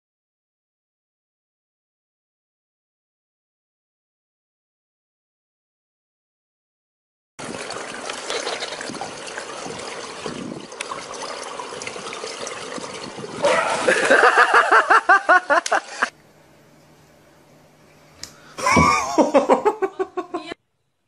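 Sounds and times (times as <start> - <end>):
pool water lapping and splashing: 7.4 - 17.2
person laughing loudly: 13.4 - 16.1, 18.6 - 20.6.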